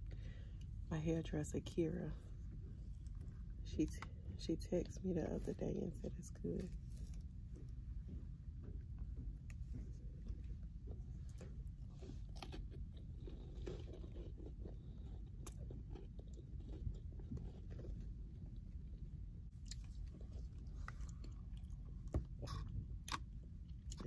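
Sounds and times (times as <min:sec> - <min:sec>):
person chewing crunchy cracker: 0:06.6 - 0:18.7, 0:19.5 - 0:24.0.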